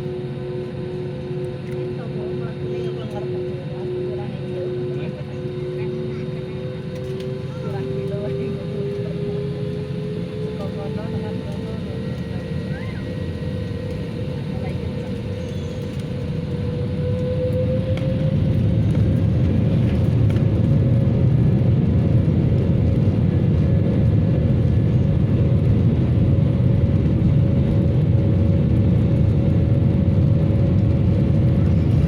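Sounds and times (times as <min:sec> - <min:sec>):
deep jet engine rumble: 0:00.0 - 0:32.0
jet engine whine: 0:00.0 - 0:32.0.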